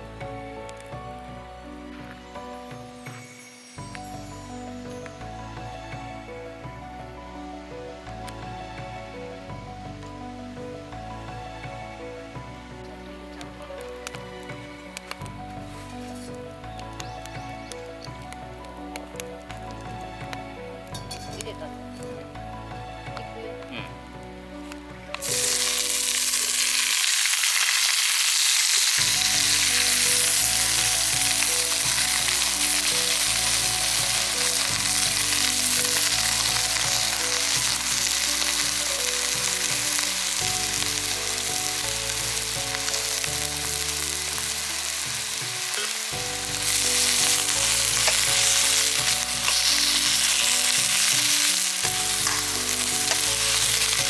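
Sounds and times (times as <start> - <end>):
background music: 0.0 - 54.0
food sizzling in a pan: 23.0 - 54.0.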